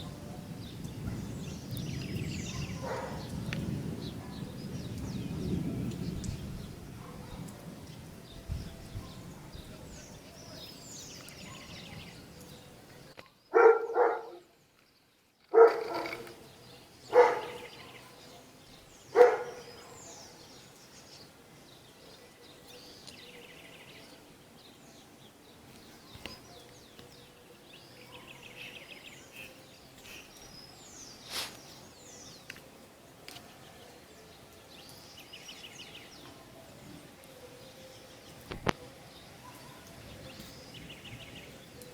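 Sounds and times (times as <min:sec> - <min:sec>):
birds chirping: 0:00.0 - 0:41.9
dog barking: 0:02.5 - 0:03.3, 0:07.0 - 0:07.7, 0:11.4 - 0:11.8, 0:13.5 - 0:14.5, 0:15.5 - 0:16.3, 0:17.1 - 0:20.2, 0:28.0 - 0:28.4, 0:39.4 - 0:39.9.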